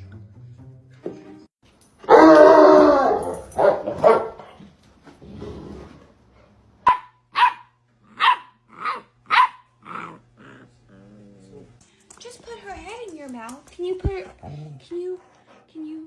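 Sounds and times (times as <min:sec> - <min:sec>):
dog barking: 0:02.0 - 0:04.6, 0:06.8 - 0:10.0.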